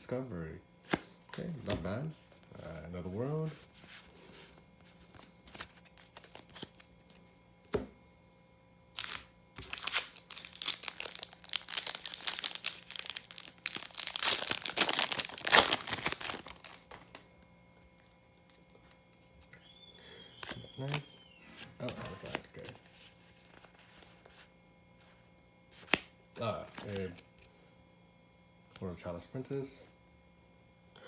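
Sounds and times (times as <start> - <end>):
foil wrapper tearing and crinkling: 5.5 - 7.1, 9.0 - 17.2.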